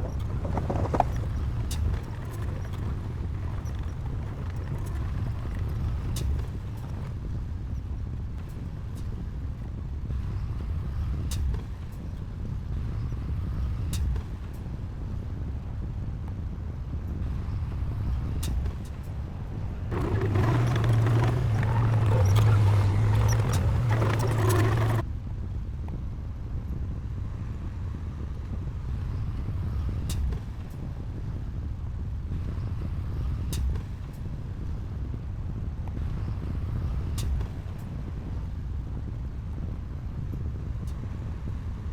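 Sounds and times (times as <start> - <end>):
diesel engine running: 19.9 - 25.0.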